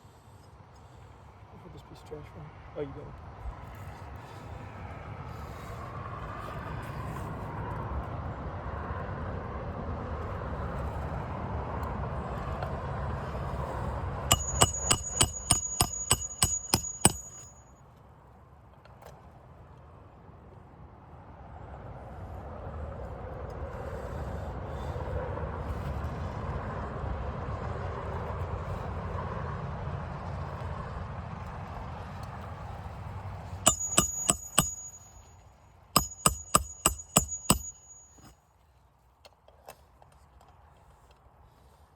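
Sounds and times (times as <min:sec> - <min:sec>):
hammer tapping nail: 0:14.3 - 0:17.5, 0:33.7 - 0:35.1, 0:36.0 - 0:38.3.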